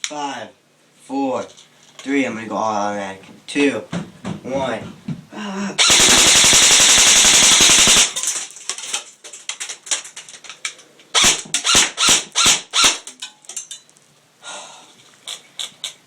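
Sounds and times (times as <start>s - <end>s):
airsoft rifle full-auto burst: 5.8s - 8.2s, 11.2s - 13.0s.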